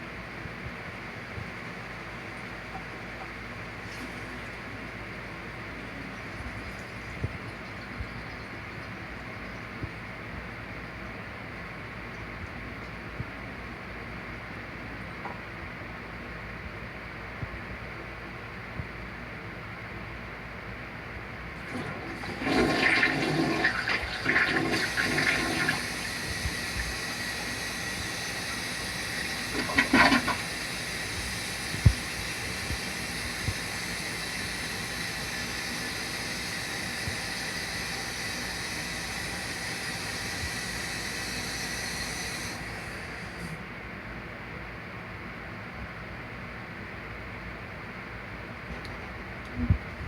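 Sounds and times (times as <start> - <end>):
toilet flushing: 2.8 - 7.8, 21.6 - 43.6
toilet tank refilling hiss: 3.6 - 7.8, 21.6 - 43.7.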